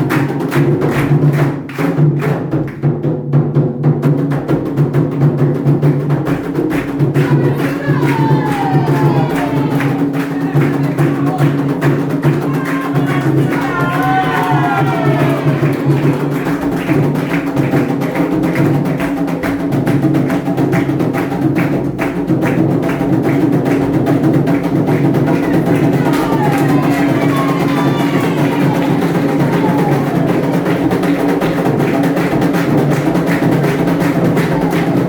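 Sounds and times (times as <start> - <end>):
hand drums playing: 0.0 - 35.0
voices singing: 7.2 - 16.3, 25.3 - 31.3.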